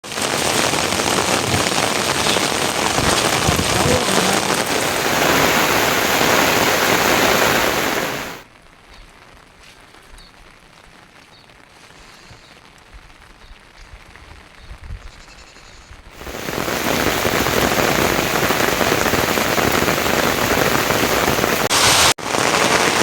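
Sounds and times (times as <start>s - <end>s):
heavy rain falling: 0.0s - 11.8s, 16.1s - 23.0s.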